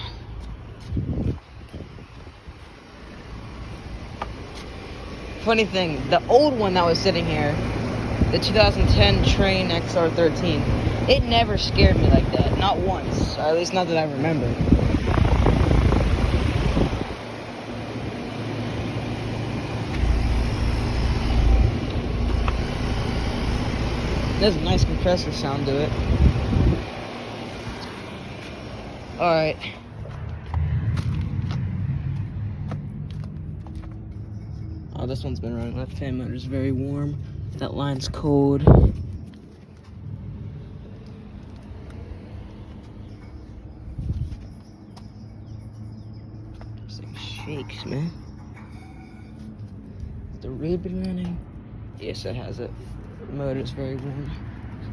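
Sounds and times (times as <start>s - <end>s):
air conditioner compressor humming: 0.0s - 30.3s, 46.2s - 54.9s
low rumbling swells: 14.5s - 17.2s, 19.7s - 27.0s.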